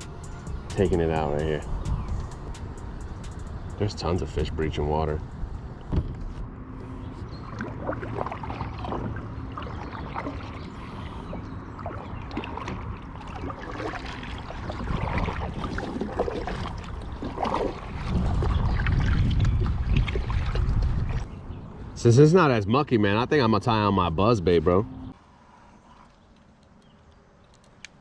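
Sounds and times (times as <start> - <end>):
wind rumble on microphone: 0.0 - 13.2, 13.8 - 22.0
water splashing and lapping: 0.0 - 21.3.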